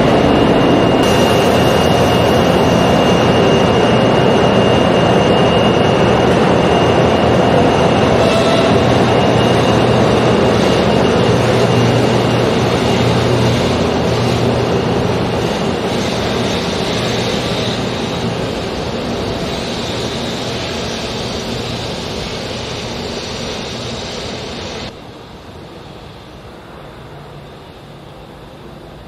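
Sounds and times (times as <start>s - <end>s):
train running past: 0.0s - 29.0s.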